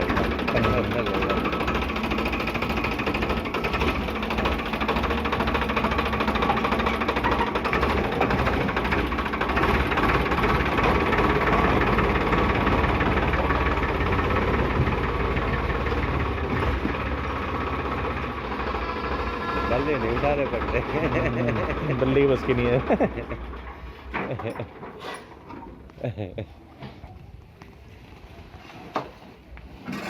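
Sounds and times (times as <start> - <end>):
diesel engine knocking: 0.0 - 23.9.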